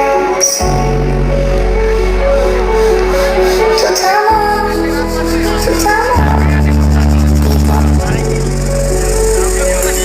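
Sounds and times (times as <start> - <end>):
electronic remix music: 0.0 - 10.0.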